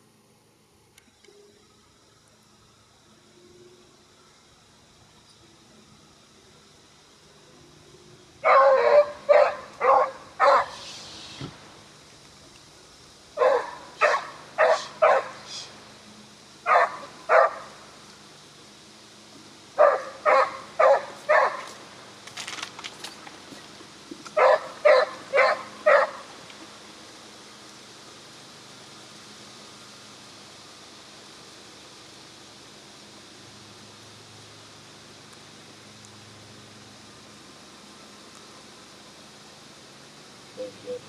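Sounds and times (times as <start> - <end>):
dog barking: 8.4 - 10.8, 13.4 - 15.4, 16.7 - 17.6, 19.8 - 21.7, 24.4 - 26.2.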